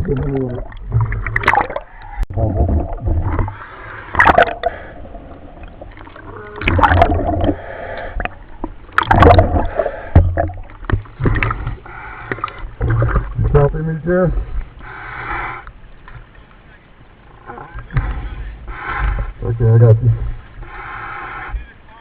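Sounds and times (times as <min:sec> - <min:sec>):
gurgling exhaust bubbles: 0:00.0 - 0:07.6, 0:09.0 - 0:11.6
diver breathing through regulator: 0:07.3 - 0:08.4, 0:09.5 - 0:10.5, 0:14.8 - 0:15.7, 0:18.0 - 0:19.4, 0:20.6 - 0:21.6.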